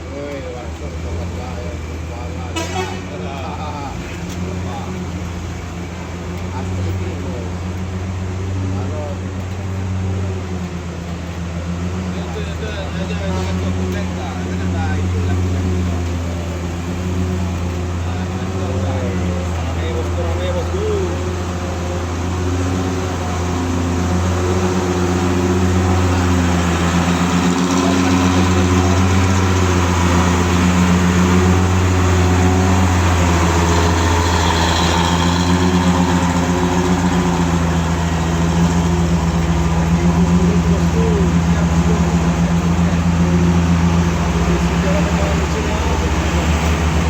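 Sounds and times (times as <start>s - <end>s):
diesel truck engine droning: 0.0s - 47.0s.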